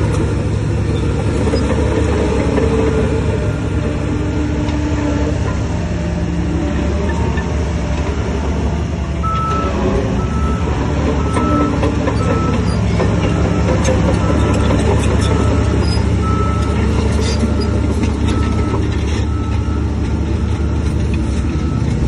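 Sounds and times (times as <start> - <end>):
diesel machinery running: 0.0 - 22.0
reversing alarm beeping: 9.2 - 22.0.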